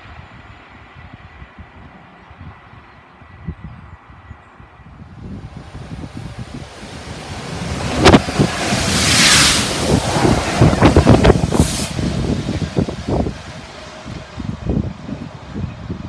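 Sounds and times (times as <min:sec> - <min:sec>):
air rush buffeting microphone: 0:05.0 - 0:16.0
train wheel noise: 0:05.2 - 0:16.0
hiss: 0:05.6 - 0:14.2.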